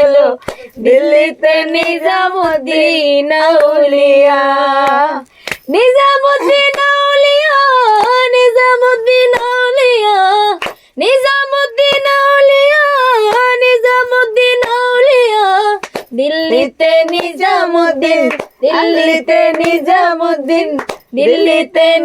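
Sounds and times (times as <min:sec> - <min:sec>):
high voice singing: 0:00.0 - 0:09.4, 0:15.0 - 0:22.0
lower voice singing: 0:00.0 - 0:15.6, 0:16.2 - 0:22.0.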